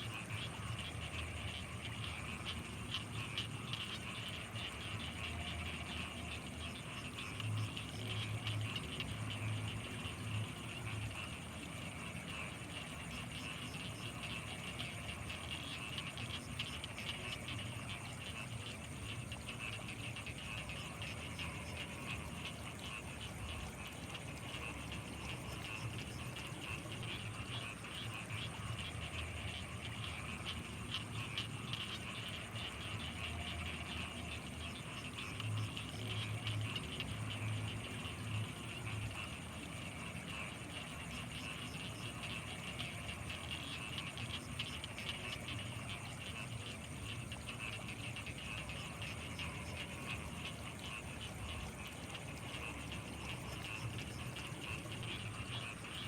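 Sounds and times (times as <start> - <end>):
high-pitched insect whine: 0.0 - 56.0
rapid trilling of frogs and insects: 0.0 - 56.0.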